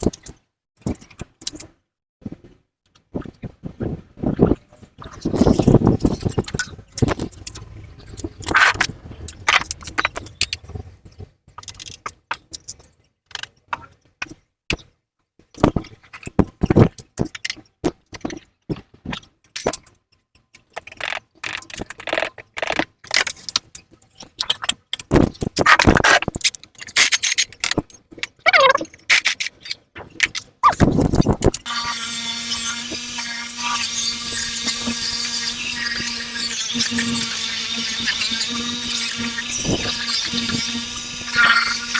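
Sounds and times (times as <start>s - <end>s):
metal parts clinking and scraping: 25.6s - 27.8s, 28.5s - 31.3s
power tool high whine: 31.7s - 41.9s.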